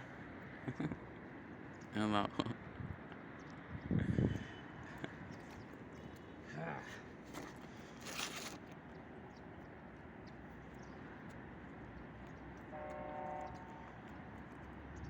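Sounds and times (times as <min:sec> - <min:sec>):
outdoor noise: 0:00.0 - 0:15.0
rustling: 0:07.3 - 0:08.8
brief horn toot: 0:12.7 - 0:13.9.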